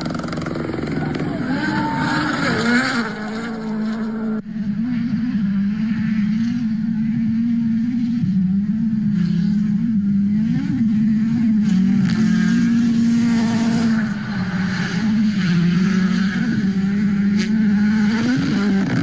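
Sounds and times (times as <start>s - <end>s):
rally car engine at high revs: 0.0s - 19.0s.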